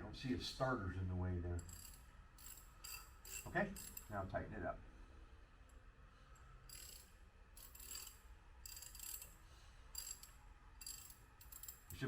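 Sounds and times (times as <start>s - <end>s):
ratchet wrench clicking: 6.7s - 12.0s.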